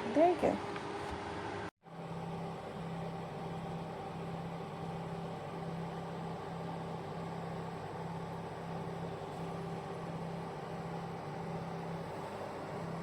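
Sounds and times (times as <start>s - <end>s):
fan heater whirring: 0.0s - 13.0s.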